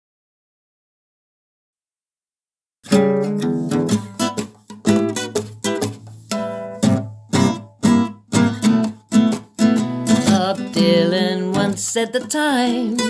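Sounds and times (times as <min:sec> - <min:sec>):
acoustic guitar strumming: 0:02.9 - 0:13.0.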